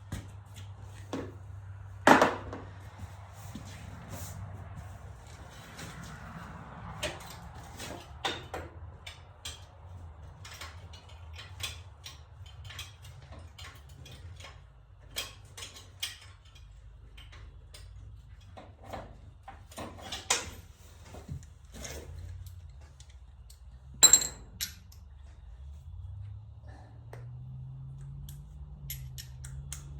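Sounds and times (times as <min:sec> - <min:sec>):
ringing metal clink: 0:24.0 - 0:25.1.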